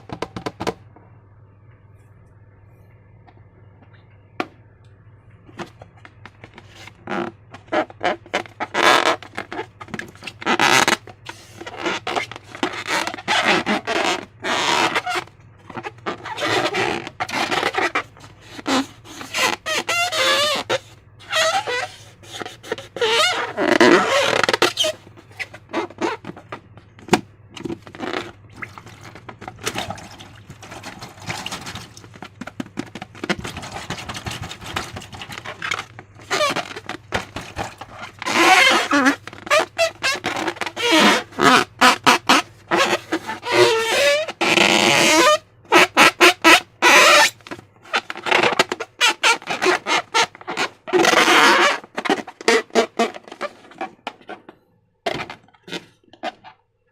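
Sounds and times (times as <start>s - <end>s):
slime squelching by hand: 27.8s - 44.4s.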